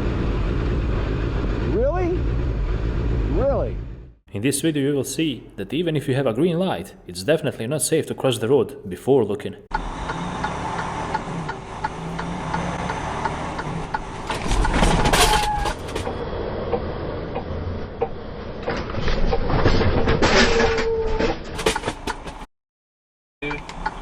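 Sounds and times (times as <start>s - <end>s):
road and engine noise: 0.0s - 4.2s, 9.7s - 20.5s, 23.4s - 24.0s.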